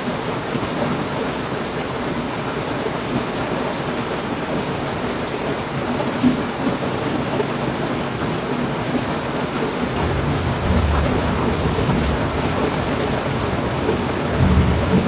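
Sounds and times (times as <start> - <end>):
heavy rain falling: 0.0 - 15.0
low rumble of thunder: 9.9 - 15.0.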